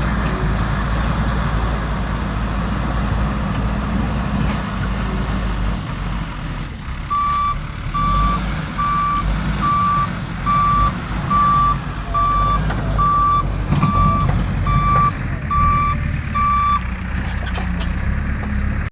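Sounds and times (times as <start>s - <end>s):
diesel engine running: 0.0s - 18.9s
reversing alarm beeping: 7.1s - 16.8s.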